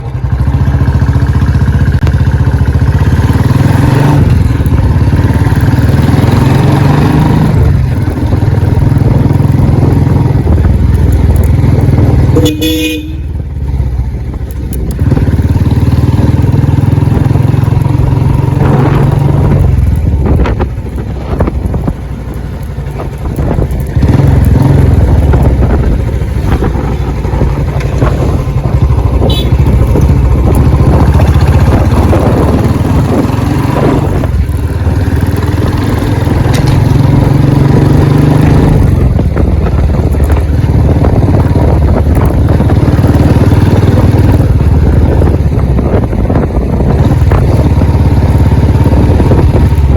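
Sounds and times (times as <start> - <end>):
motorcycle engine revving: 0.0 - 49.9
horn beep: 12.3 - 13.3, 29.2 - 29.6.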